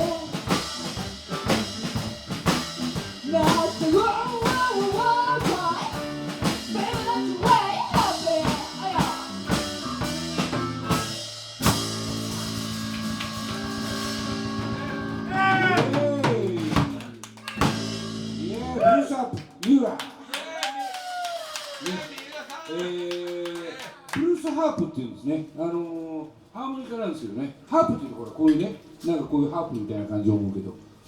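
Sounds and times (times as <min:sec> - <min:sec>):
live blues band playing: 0:00.0 - 0:18.8
drum kit beat: 0:00.0 - 0:19.6
harmonica lead line: 0:05.0 - 0:16.3.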